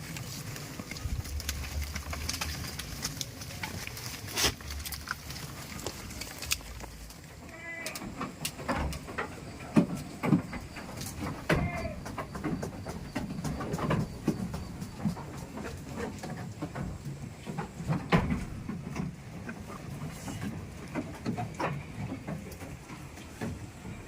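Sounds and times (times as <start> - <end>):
goats bleating: 7.4 - 8.2, 11.5 - 12.2.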